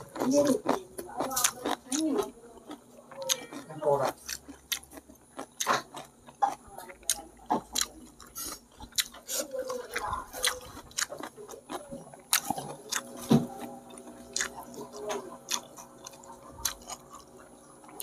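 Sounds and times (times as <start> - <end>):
person chewing and lip smacking: 0.0 - 18.0.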